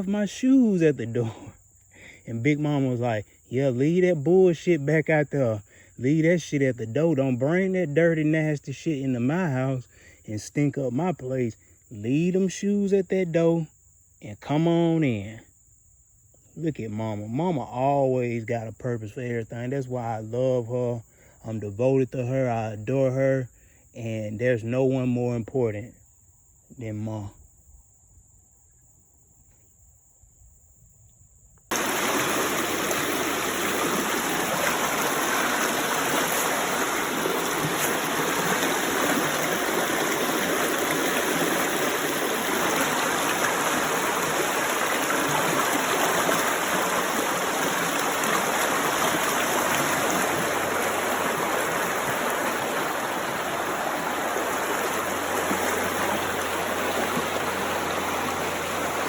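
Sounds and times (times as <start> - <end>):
running water rushing: 0.0 - 1.5, 31.7 - 59.0.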